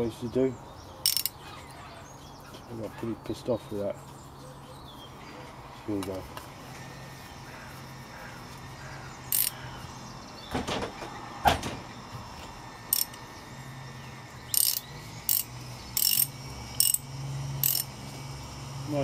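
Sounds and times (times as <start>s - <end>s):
ratchet wrench clicking: 1.0s - 1.4s, 9.3s - 9.6s, 12.9s - 13.2s, 14.5s - 18.0s.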